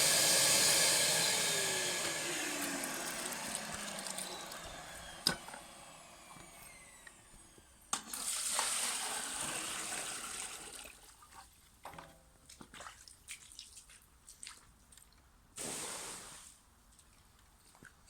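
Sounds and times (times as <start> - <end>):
wet vacuum rushing hiss: 15.6 - 16.4.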